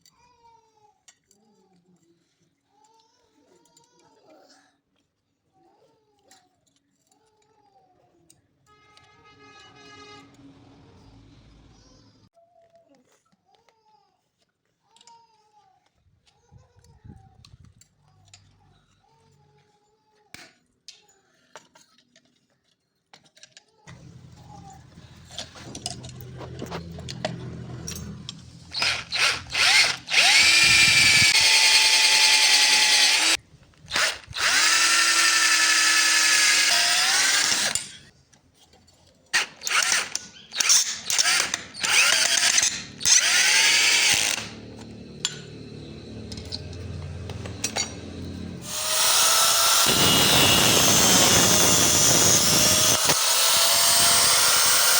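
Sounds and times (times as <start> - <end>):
power tool grinding steel: 23.9 - 38.1, 39.4 - 54.9.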